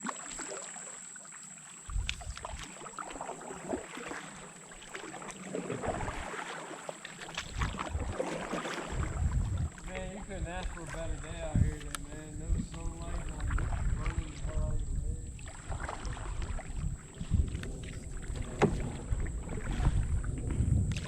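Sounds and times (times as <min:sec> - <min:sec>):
water splashing around paddle: 0:00.0 - 0:21.0
low rumbles: 0:09.0 - 0:21.0.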